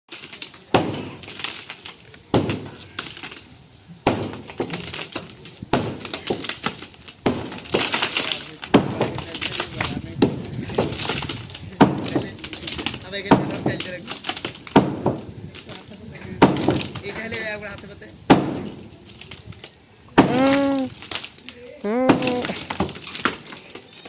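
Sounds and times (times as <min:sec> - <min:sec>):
hammer striking concrete: 0:00.7 - 0:01.2, 0:02.3 - 0:02.8, 0:04.0 - 0:15.3, 0:16.4 - 0:17.3, 0:18.3 - 0:18.8, 0:20.2 - 0:20.9
rattle of loose pieces: 0:22.3 - 0:24.0.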